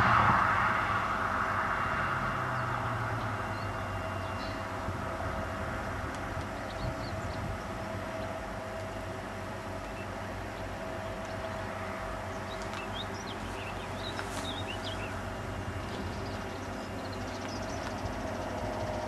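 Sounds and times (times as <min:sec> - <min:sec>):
birds chirping: 0:02.3 - 0:04.9, 0:06.4 - 0:19.0.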